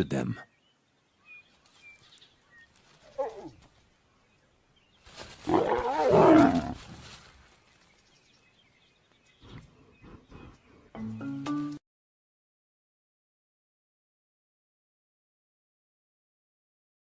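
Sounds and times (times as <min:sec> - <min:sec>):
lions snarling: 0:05.4 - 0:07.0.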